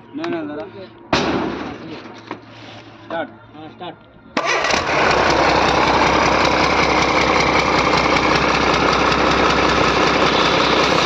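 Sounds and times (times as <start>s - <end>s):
engine idling: 4.4s - 11.0s.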